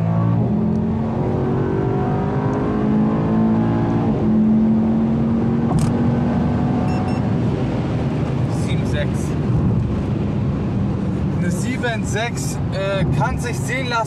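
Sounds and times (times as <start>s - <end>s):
car engine at full throttle: 0.0s - 14.0s.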